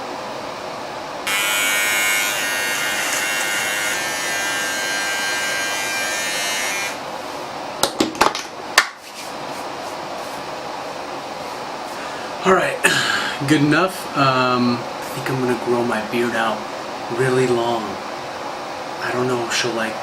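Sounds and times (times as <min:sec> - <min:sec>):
electric shaver buzzing: 0:01.3 - 0:07.0.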